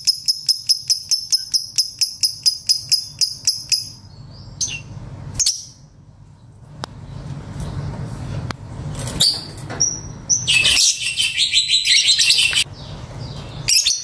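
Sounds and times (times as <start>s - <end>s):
lovebird chirping: 0.0s - 5.9s, 9.2s - 14.0s.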